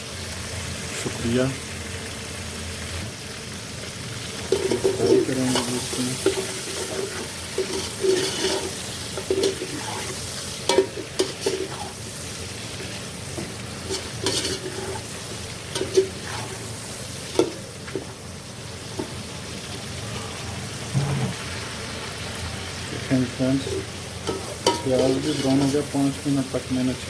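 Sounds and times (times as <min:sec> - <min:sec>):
chicken frying in hot oil: 0:00.0 - 0:27.0
spoon scraping and knocking pot: 0:06.2 - 0:10.1.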